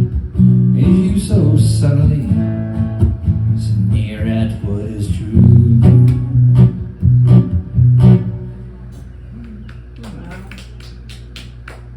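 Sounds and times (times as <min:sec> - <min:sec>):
acoustic guitar strumming chords: 0:00.0 - 0:09.0.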